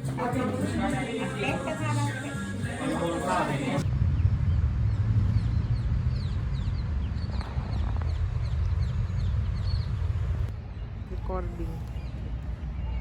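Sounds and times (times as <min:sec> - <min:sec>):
low rumble: 0:03.6 - 0:13.0.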